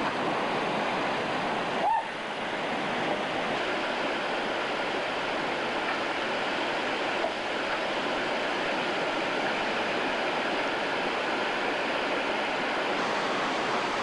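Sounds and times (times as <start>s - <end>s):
whitewater rushing: 0.0s - 14.0s.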